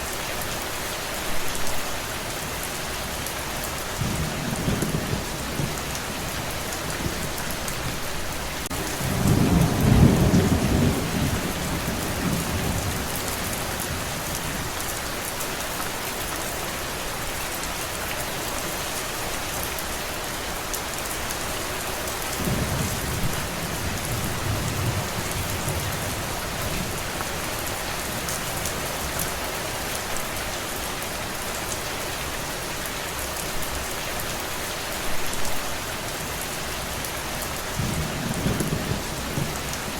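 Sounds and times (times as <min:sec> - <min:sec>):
heavy rain: 0:00.0 - 0:39.9
thunder rumbling: 0:04.0 - 0:14.7, 0:22.4 - 0:29.2, 0:37.8 - 0:39.9.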